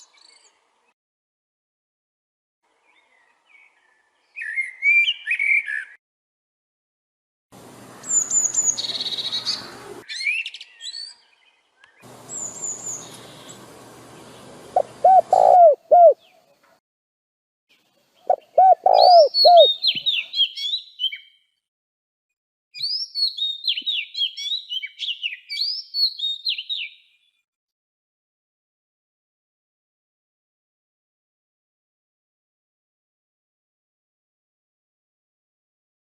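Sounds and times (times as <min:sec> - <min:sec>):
songbirds chirping: 0:00.0 - 0:01.0, 0:02.6 - 0:06.0, 0:07.6 - 0:16.8, 0:17.7 - 0:21.6
background hiss: 0:12.1 - 0:16.0.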